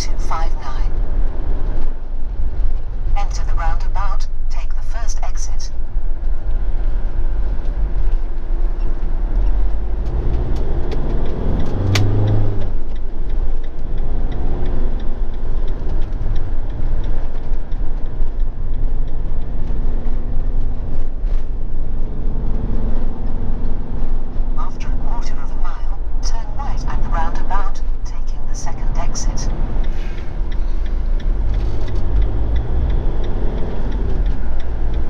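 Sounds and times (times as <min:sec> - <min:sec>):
vehicle engine and road rumble: 0:00.0 - 0:35.0
sharp tick: 0:08.8 - 0:22.6, 0:29.5 - 0:35.0.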